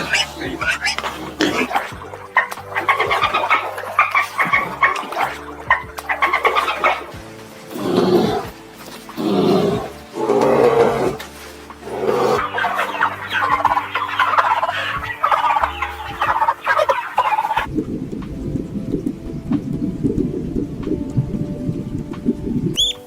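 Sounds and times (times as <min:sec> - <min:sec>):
fowl calling: 0:00.0 - 0:17.7, 0:22.8 - 0:23.0
low rumbling noise: 0:00.0 - 0:22.8.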